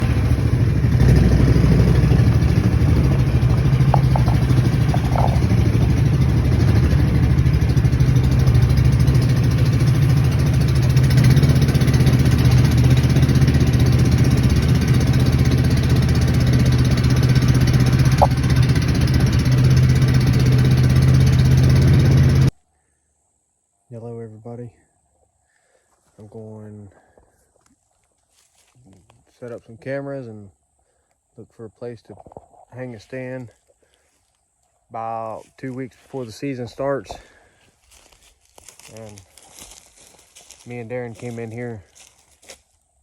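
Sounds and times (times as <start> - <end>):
engine running: 0.0 - 22.6, 32.3 - 42.8.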